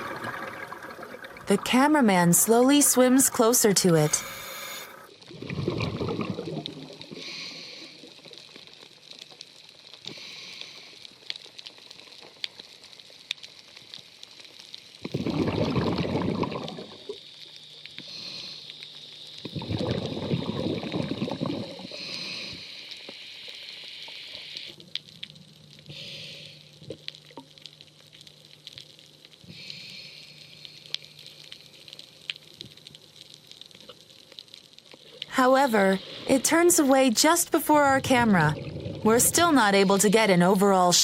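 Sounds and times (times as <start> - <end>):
gurgling exhaled bubbles: 0.0 - 1.8, 5.3 - 7.4, 15.0 - 17.2, 19.4 - 22.1, 37.7 - 40.3
regulator hissing inhales: 7.2 - 8.1, 18.0 - 18.7, 21.9 - 23.1, 25.9 - 26.7.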